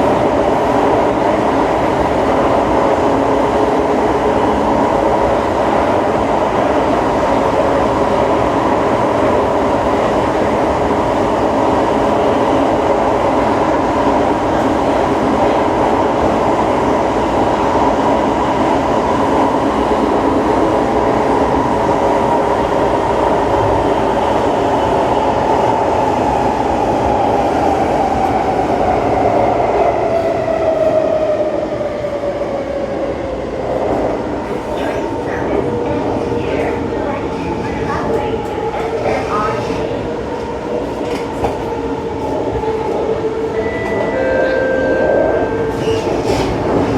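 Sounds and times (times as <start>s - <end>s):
metro train traction whine: 0.0s - 46.9s.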